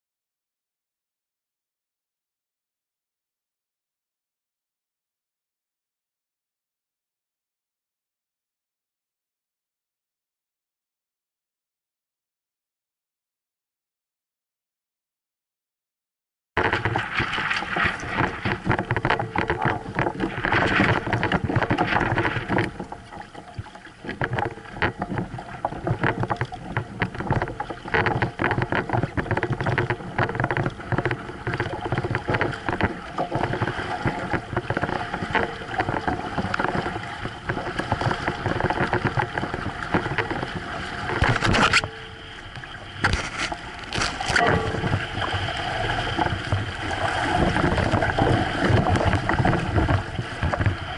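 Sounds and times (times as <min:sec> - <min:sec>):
water splashing against hull: 0:16.6 - 0:50.9.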